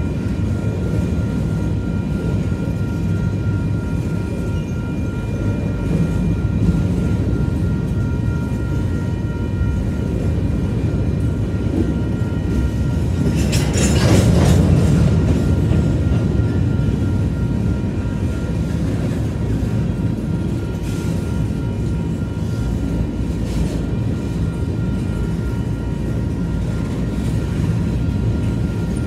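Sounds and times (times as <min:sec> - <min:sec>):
freight train rolling past: 0:00.0 - 0:29.0.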